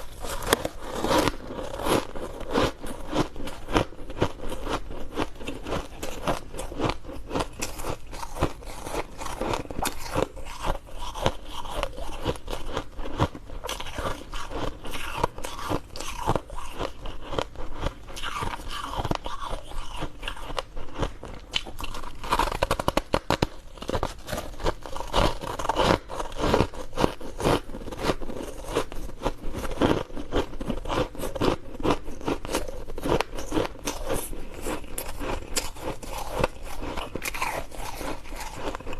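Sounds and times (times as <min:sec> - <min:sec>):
ice crunching and cracking: 0:00.0 - 0:03.5, 0:32.5 - 0:38.9.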